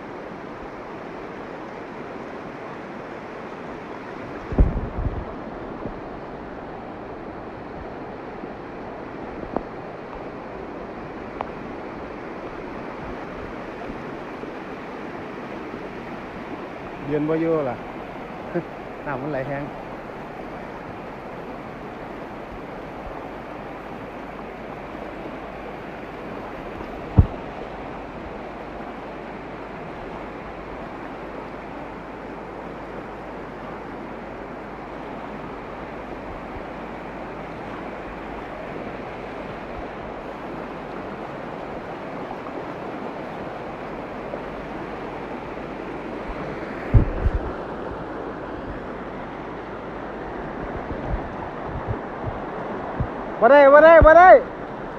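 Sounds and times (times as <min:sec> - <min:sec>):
floodwater rushing: 0:00.0 - 0:54.9
sharp low thump: 0:04.5 - 0:06.0, 0:27.1 - 0:27.5, 0:46.9 - 0:47.5.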